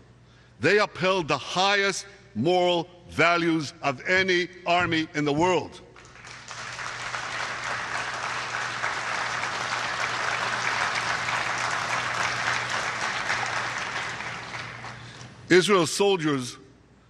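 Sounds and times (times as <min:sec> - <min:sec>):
audience applauding: 0:06.0 - 0:15.4.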